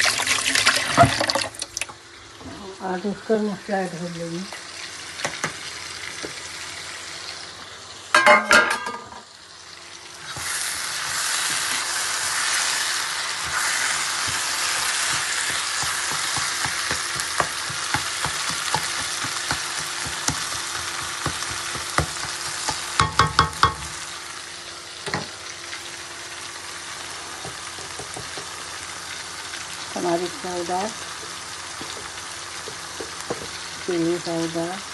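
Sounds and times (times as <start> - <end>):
food sizzling in a pan: 0.0 - 34.9
metal spoon clanking on pan: 8.1 - 9.2, 22.7 - 23.9.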